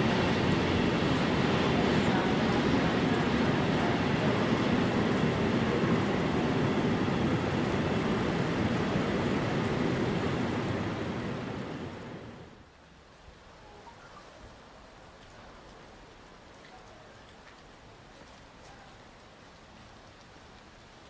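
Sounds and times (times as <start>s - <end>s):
train rolling: 0.0s - 12.6s.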